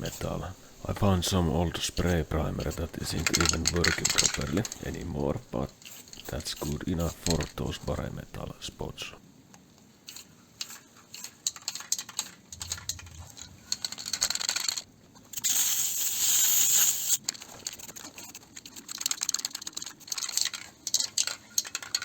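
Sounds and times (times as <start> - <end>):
aerosol can ball rattling: 0.9 - 7.8, 10.1 - 22.0
spray can hissing: 15.3 - 17.2.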